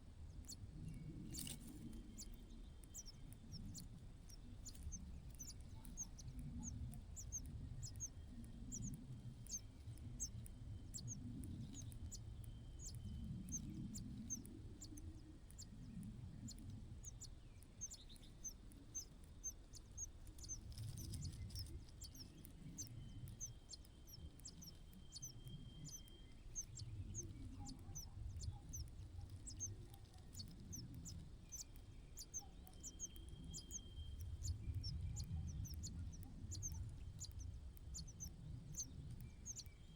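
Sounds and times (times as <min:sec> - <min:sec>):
small bird chirping: 0:00.3 - 0:39.9.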